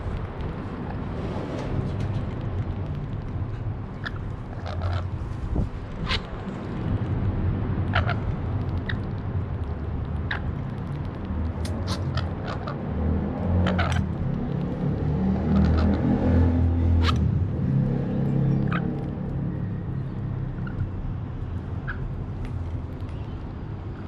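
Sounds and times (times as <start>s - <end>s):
steady low rumble: 0.0s - 14.9s
parrots squawking: 4.0s - 5.2s, 7.9s - 8.3s, 11.7s - 12.8s, 13.6s - 14.1s, 15.4s - 16.1s, 18.6s - 18.9s.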